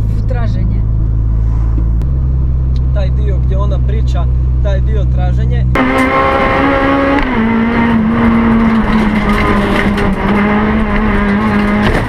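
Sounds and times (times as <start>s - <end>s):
race car engine at high revs: 4.4s - 12.0s.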